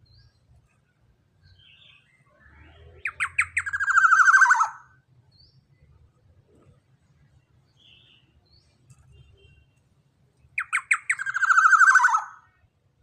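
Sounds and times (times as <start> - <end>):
oriole calling: 3.0 - 5.0, 10.6 - 12.5.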